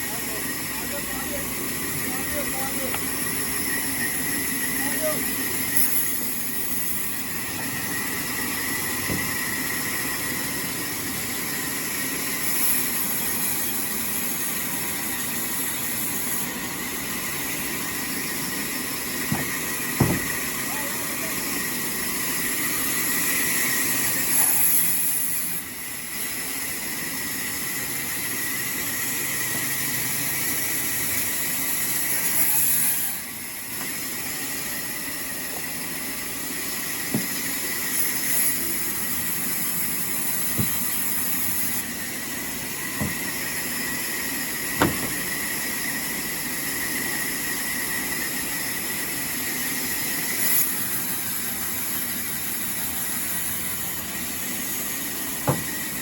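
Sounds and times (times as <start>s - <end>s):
sawmill machinery whining: 0.0s - 56.0s
short knocks: 19.3s - 20.4s, 40.5s - 40.9s, 43.0s - 43.3s, 44.8s - 45.3s, 55.4s - 55.8s.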